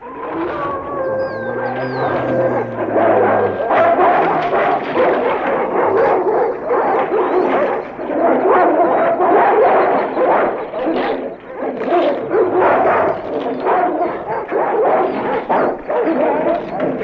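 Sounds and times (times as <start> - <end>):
dogs snarling yelping and whimpering: 0.0 - 7.9.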